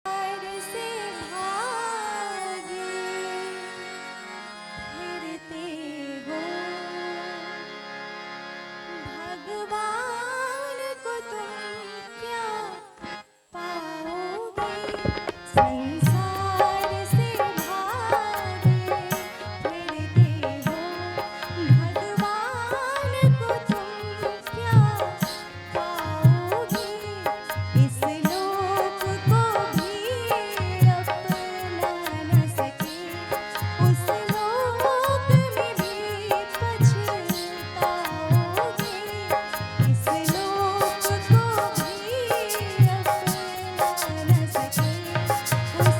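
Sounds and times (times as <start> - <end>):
harmonium melody and chords: 0.0 - 45.9
hand drums playing a beat: 39.8 - 45.9.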